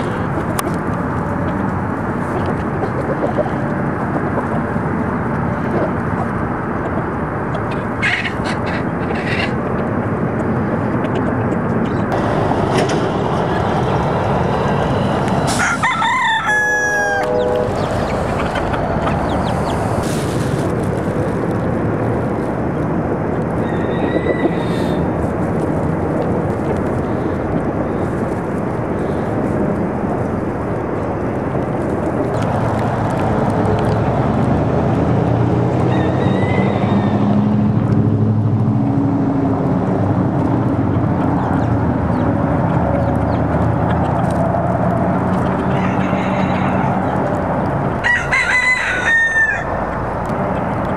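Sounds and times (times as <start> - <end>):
traffic street noise: 0.0 - 50.9
vehicle engine drone: 0.0 - 50.9
bird chirping: 17.2 - 20.0.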